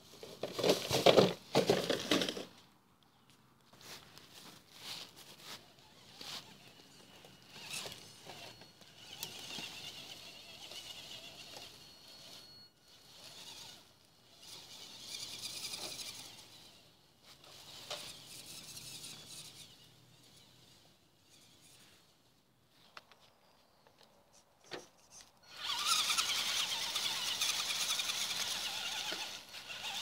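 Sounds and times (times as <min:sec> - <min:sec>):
toy truck motor whining: 0:05.3 - 0:22.1, 0:25.0 - 0:30.0.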